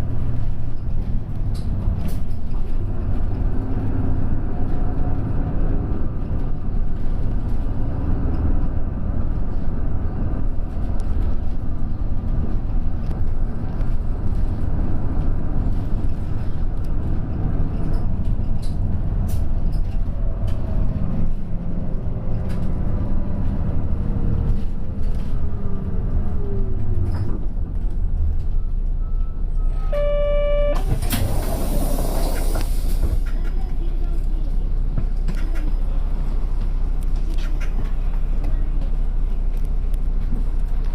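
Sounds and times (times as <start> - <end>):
bus engine and road rumble: 0.0 - 40.9
short electronic tone: 29.6 - 30.9
compressed air hiss: 31.1 - 33.2.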